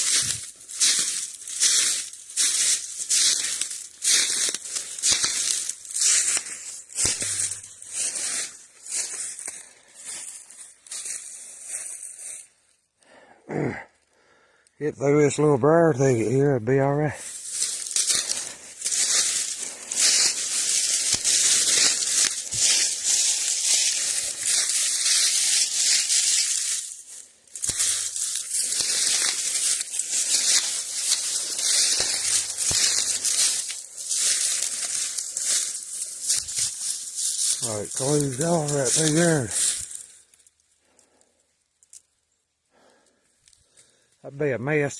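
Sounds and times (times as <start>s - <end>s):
twigs snapping: 0.0s - 8.2s, 17.3s - 40.6s
brush rustling against clothing: 0.0s - 12.5s, 17.2s - 40.2s
footsteps crunching dry leaves: 0.0s - 12.6s, 17.1s - 40.6s
grunt-like voice: 13.5s - 13.9s.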